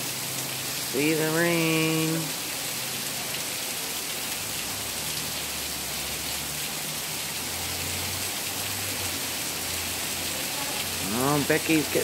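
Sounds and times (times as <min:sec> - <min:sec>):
heavy rain on wet pavement: 0:00.0 - 0:12.0.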